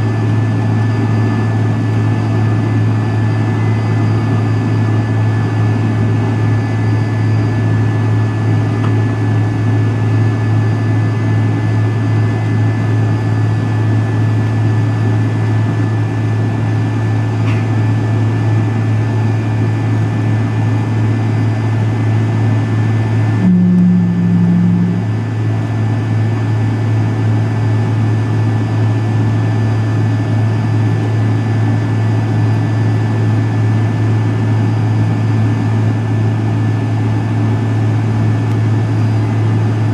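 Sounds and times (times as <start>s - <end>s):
airplane cabin engine drone: 0.0s - 39.9s
low hum: 18.6s - 28.6s.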